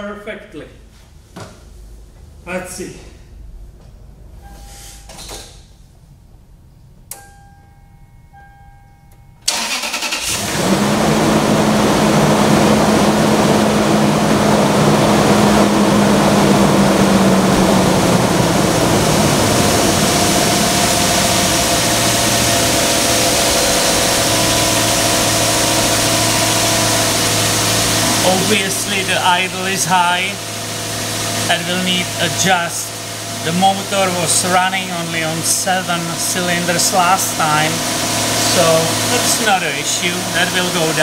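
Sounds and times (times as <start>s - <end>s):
short electronic beeps: 4.4s - 5.2s
engine starter cranking: 9.4s - 11.3s
engine running at fast idle: 9.5s - 41.0s
steady tone: 11.4s - 41.0s.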